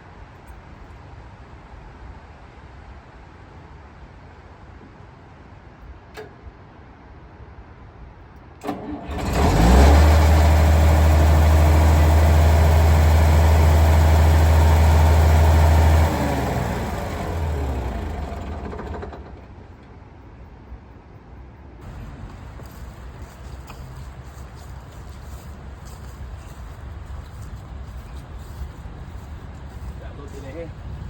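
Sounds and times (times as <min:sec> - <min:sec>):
tractor engine running: 0:08.6 - 0:20.0, 0:21.8 - 0:31.0.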